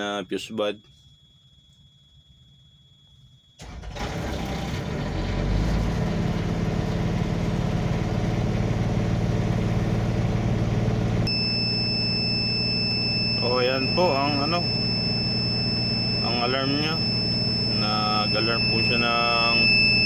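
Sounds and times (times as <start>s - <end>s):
truck engine starting and running: 3.6s - 20.0s
high-pitched alarm tone: 11.2s - 20.0s.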